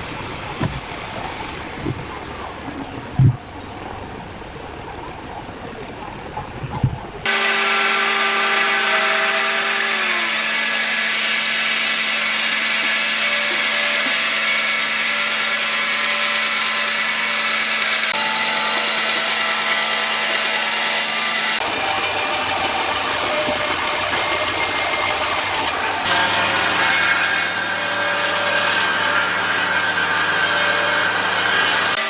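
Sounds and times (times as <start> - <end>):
power tool whining on wood: 7.3 - 32.0.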